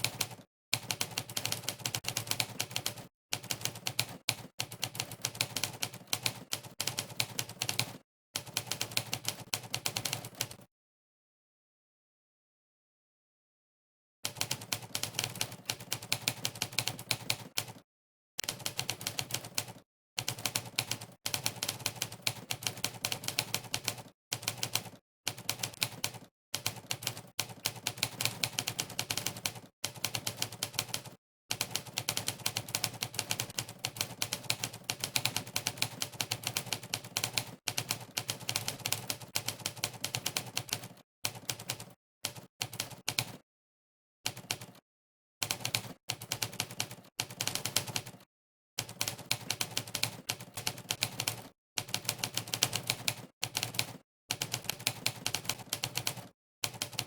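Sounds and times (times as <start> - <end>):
typewriter keystroke clacks: 45.4 - 48.2, 48.8 - 57.0.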